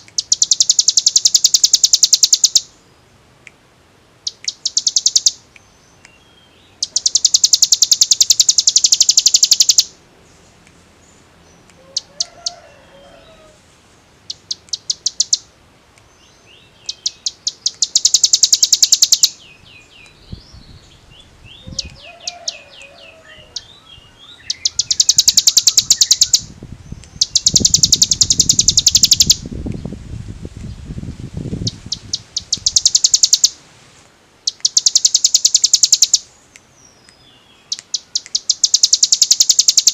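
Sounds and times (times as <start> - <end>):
bird singing rapid trills: 0.0 - 3.0, 4.2 - 10.0, 14.2 - 15.5, 16.2 - 29.5, 31.6 - 33.6, 34.5 - 39.9
soft bird twittering: 0.0 - 3.0, 4.2 - 13.6, 14.2 - 29.9, 31.6 - 33.6, 34.5 - 39.9.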